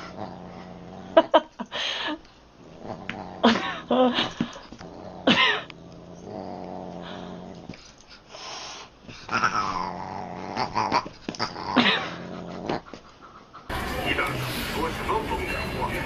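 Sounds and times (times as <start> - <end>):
cat growling: 0.0 - 1.5, 2.6 - 7.8, 9.2 - 13.0.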